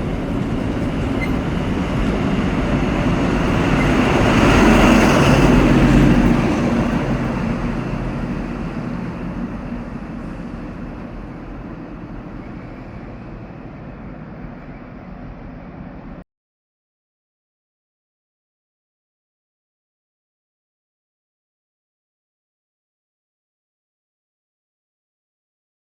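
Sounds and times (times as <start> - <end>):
diesel train passing: 0.0 - 16.2.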